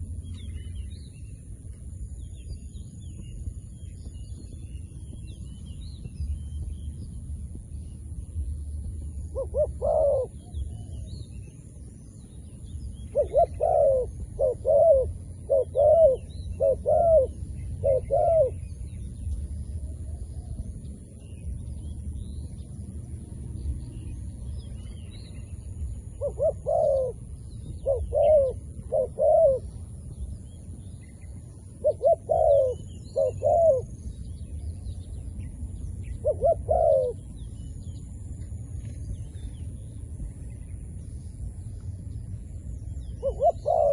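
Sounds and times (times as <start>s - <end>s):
small birds chirping: 0.0s - 43.9s
steady low rumble: 0.0s - 43.9s
dove cooing: 9.2s - 11.1s, 13.1s - 18.7s, 26.1s - 29.9s, 31.7s - 34.0s, 36.2s - 37.4s, 43.2s - 43.9s.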